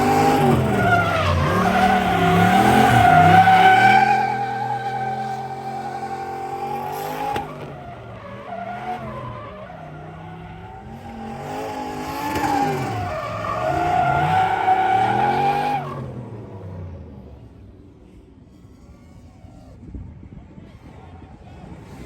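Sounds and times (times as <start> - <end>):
car engine revving: 0.0 - 17.6.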